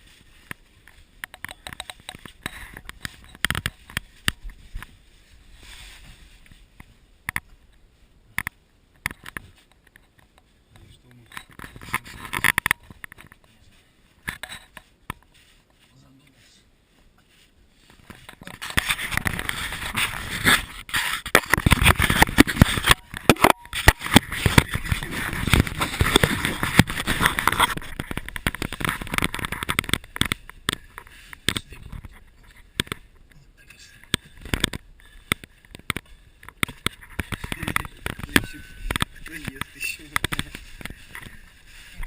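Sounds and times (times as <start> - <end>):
scraping and rubbing: 0.0 - 7.5, 11.1 - 42.0
sharp clicks and knocks: 0.4 - 4.9, 18.0 - 33.4, 34.0 - 41.4.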